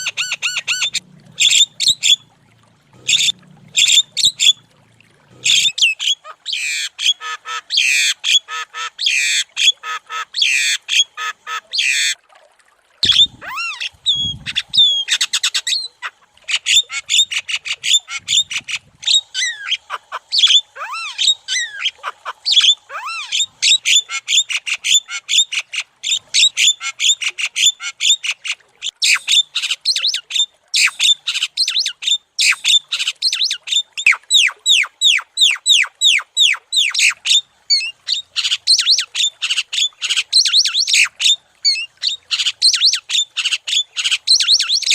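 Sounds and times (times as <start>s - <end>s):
bird chattering song: 13.0s - 15.9s, 33.2s - 39.3s, 41.7s - 44.9s.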